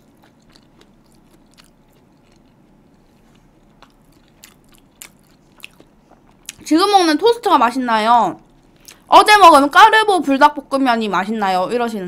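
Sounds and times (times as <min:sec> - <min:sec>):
person chewing with mouth closed: 0:00.0 - 0:06.7, 0:08.4 - 0:09.1.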